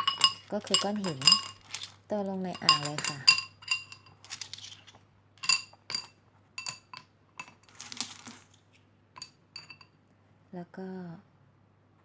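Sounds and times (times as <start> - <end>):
stones rattling: 0.0 - 8.8
stones clinking into fountain basin: 0.0 - 9.9.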